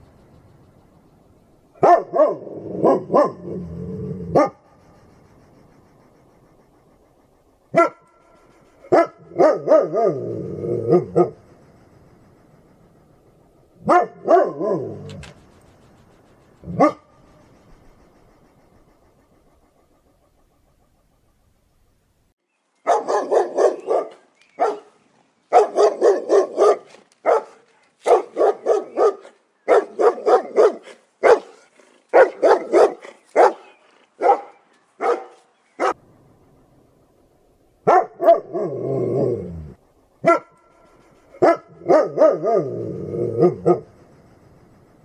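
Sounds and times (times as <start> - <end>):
dog barking: 1.8 - 3.6, 4.3 - 4.8, 7.7 - 11.4, 13.8 - 15.2, 16.6 - 17.2, 22.8 - 36.0, 37.8 - 39.4, 40.2 - 43.9.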